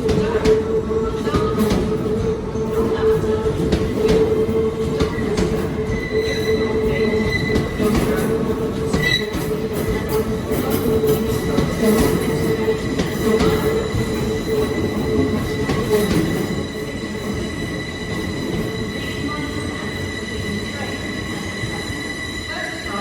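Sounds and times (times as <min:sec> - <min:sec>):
train rumble: 0:00.0 - 0:23.0
wheel squeal: 0:05.9 - 0:10.2.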